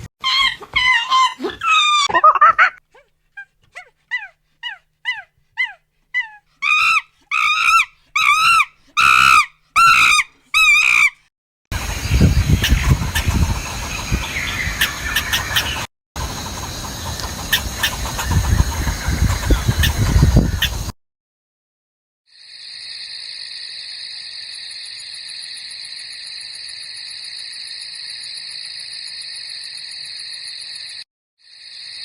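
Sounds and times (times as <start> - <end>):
high animal chirps and squeals: 0.2 - 11.2.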